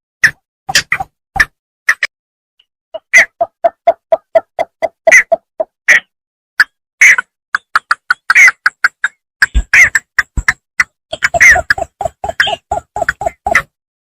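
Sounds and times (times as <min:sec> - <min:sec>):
bittern calling short sharp notes: 0:11.1 - 0:13.7.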